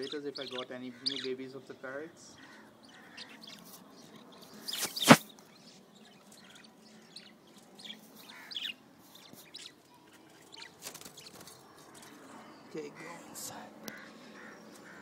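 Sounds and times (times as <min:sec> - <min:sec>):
parrots chirping: 0:00.0 - 0:01.4.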